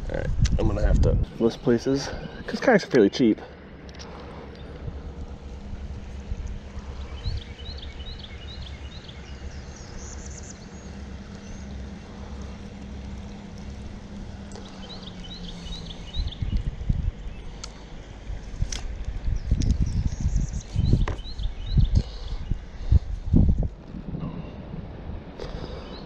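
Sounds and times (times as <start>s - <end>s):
faint steady hum: 0.0s - 26.0s
low outdoor rumble: 0.0s - 26.0s
creek water: 1.4s - 19.2s
bird chirping: 6.0s - 17.9s, 19.2s - 22.6s
bird trill: 6.8s - 12.5s.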